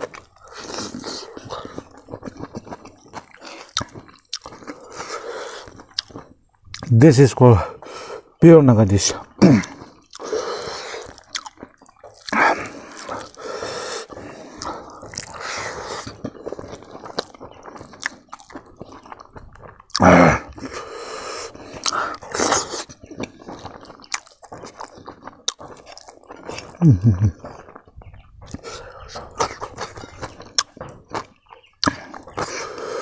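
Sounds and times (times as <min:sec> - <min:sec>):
person chewing food: 0:00.0 - 0:06.9, 0:09.1 - 0:33.0.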